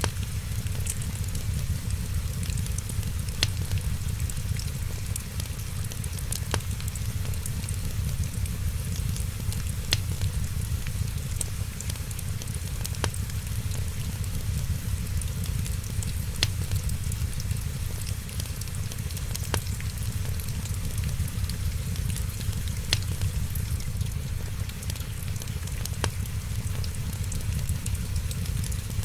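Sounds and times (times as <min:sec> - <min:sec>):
sharp fire pops: 0:00.0 - 0:24.8
wood fire crackling: 0:00.0 - 0:29.0.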